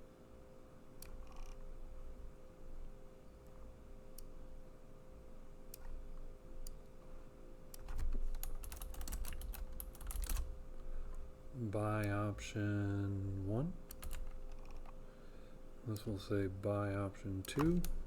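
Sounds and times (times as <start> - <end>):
typing on computer keyboard: 1.0 - 1.6, 7.8 - 10.5, 13.8 - 15.0, 17.4 - 18.0.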